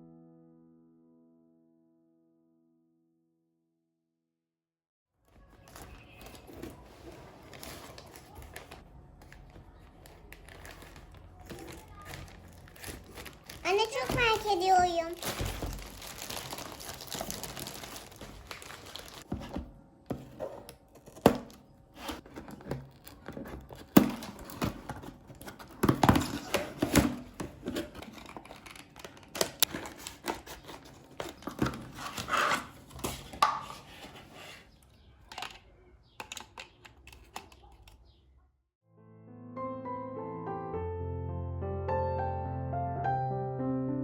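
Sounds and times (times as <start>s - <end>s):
crinkling and rustling: 5.2s - 38.2s.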